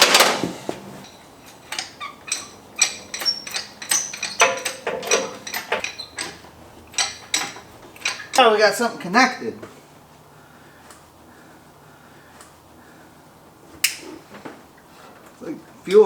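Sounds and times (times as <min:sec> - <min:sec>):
metallic clinks and clanks: 0:00.0 - 0:08.6.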